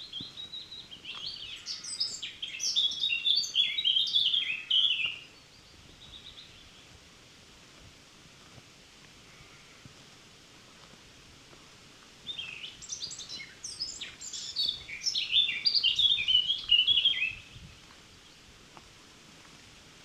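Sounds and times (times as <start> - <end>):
songbird singing: 0.0 - 7.0, 12.2 - 18.6.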